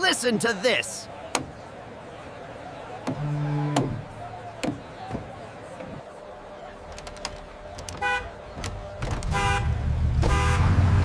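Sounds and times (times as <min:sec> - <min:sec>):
truck horn honking: 0:03.1 - 0:04.6, 0:08.0 - 0:08.4, 0:09.2 - 0:11.0.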